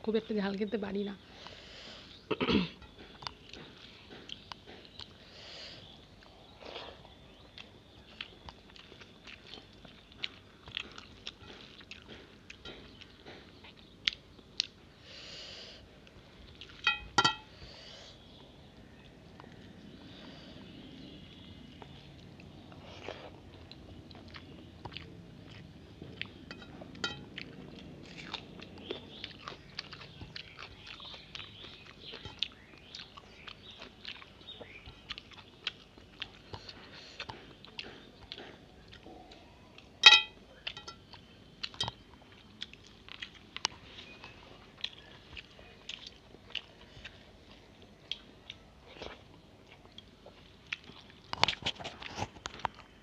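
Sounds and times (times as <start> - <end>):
wet chewing and smacking: 1.3 - 15.0, 15.8 - 17.6, 18.2 - 53.0
metallic clink on plate: 16.8 - 17.5, 26.5 - 27.3, 40.0 - 41.0
fingers mixing rice on plate: 22.5 - 27.8.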